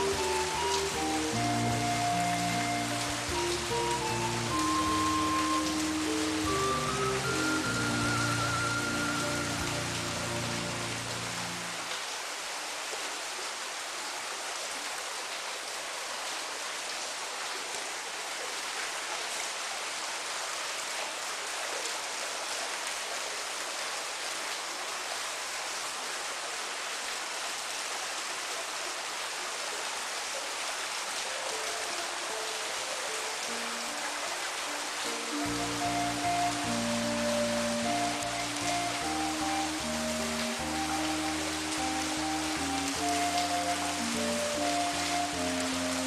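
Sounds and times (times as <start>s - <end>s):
soft low musical notes: 0.0s - 11.9s, 33.4s - 46.0s
steady rain hiss: 0.0s - 46.0s.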